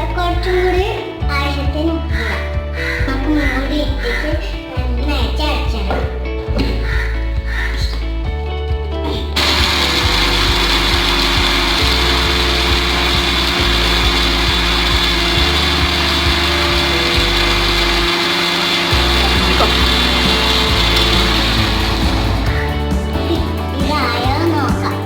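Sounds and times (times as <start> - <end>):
background music with bass line: 0.0 - 25.0
mixer grinder running: 9.4 - 25.0.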